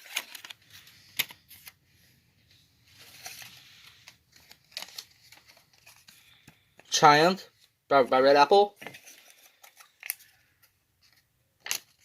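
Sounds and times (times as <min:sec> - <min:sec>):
paper rustling and crinkling: 0:00.0 - 0:01.8, 0:02.5 - 0:06.9, 0:08.7 - 0:12.0.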